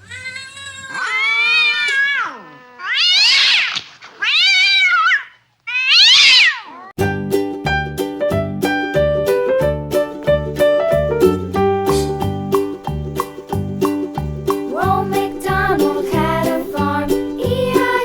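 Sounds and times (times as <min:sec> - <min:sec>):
cat meowing loudly: 0:00.0 - 0:06.9
piano music with a beat: 0:07.0 - 0:18.0.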